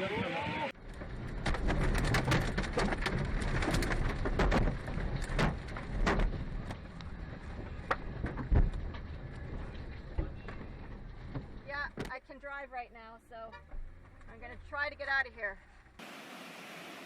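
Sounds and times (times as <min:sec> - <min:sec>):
hailstones striking hard surface: 0:00.9 - 0:09.6.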